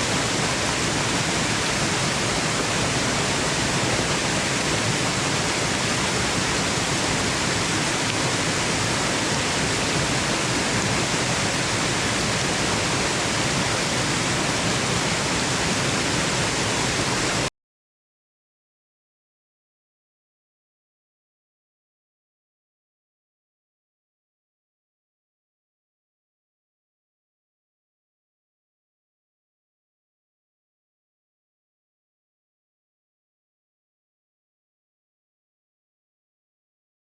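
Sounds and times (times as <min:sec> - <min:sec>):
waterfall rushing: 0:00.0 - 0:17.5.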